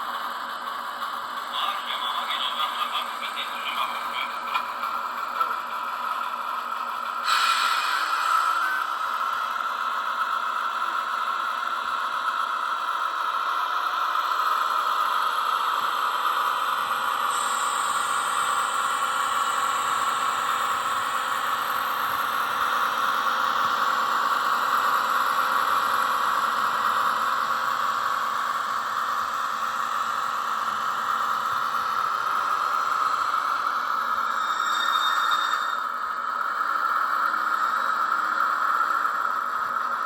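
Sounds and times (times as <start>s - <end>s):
diesel engine sound from small speaker: 0.0s - 40.0s
thin high whine: 7.2s - 9.3s, 17.2s - 23.8s, 31.8s - 38.5s.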